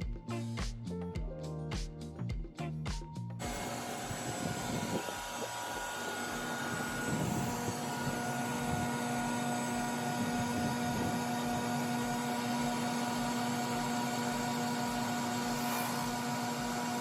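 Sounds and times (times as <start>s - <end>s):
power tool motor whine: 3.4s - 17.0s.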